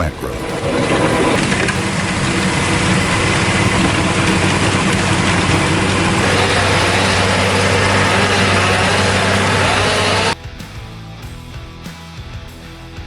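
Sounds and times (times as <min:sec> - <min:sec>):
tilling machine engine: 0:00.1 - 0:10.4.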